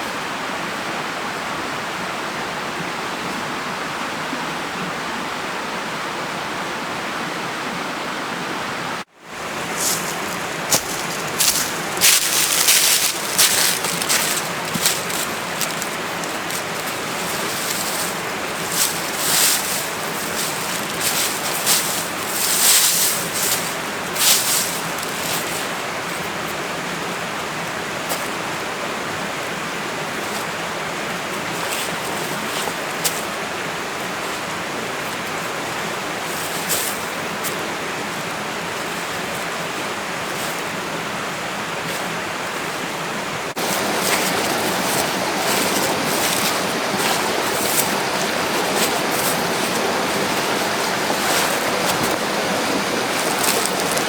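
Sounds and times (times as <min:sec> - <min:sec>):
steady rushing noise: 0:09.4 - 0:25.8
sharp crackles and rustles: 0:09.6 - 0:26.2, 0:43.6 - 0:54.0.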